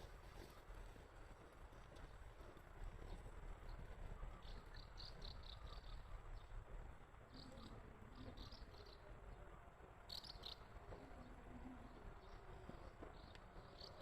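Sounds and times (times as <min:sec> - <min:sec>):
low outdoor rumble: 0:00.0 - 0:14.0
faint high-pitched chirping: 0:03.7 - 0:06.6.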